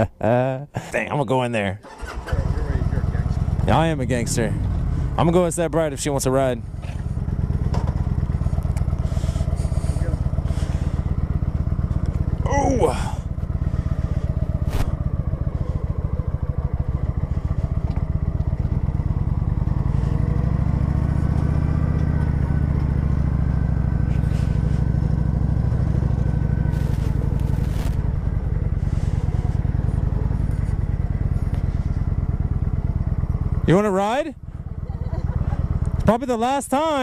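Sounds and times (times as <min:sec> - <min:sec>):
motorcycle engine at low revs: 0:01.8 - 0:37.0.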